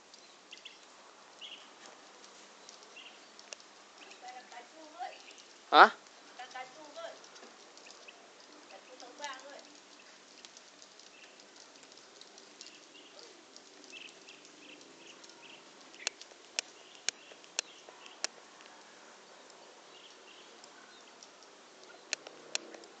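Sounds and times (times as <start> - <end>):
sharp clicks: 2.2 - 4.2, 7.2 - 18.7, 21.1 - 22.9.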